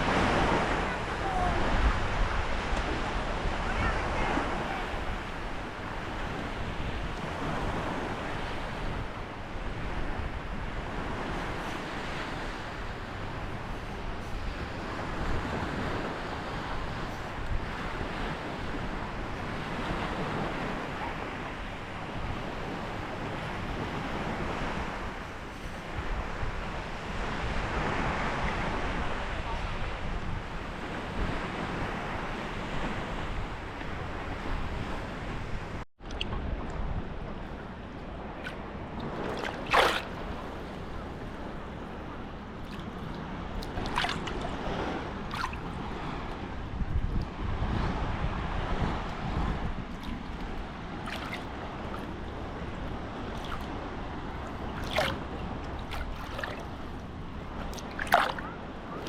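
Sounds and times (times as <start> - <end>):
sea waves washing ashore: 0.0 - 59.0
wind buffeting microphone: 0.0 - 59.0
sharp water splashes: 38.3 - 41.1, 42.5 - 45.8, 49.9 - 59.0.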